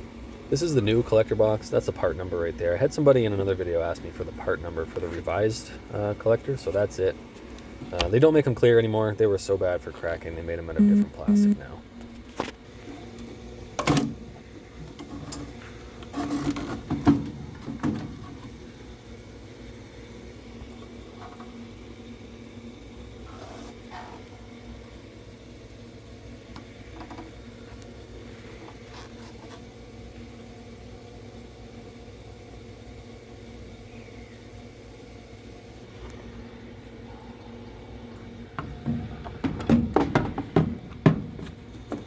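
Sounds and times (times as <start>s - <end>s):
steady low hum: 0.0s - 12.0s, 29.6s - 41.8s
parts knocking and clattering: 38.6s - 42.0s.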